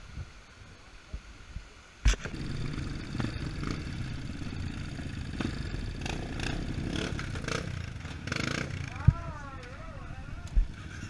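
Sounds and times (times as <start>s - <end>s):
motorcycle engine running at low revs: 2.1s - 11.0s.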